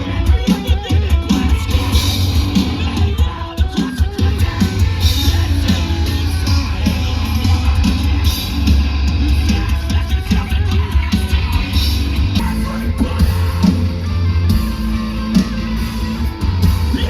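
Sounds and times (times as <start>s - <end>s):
heavy rock band playing: 0.0s - 17.0s.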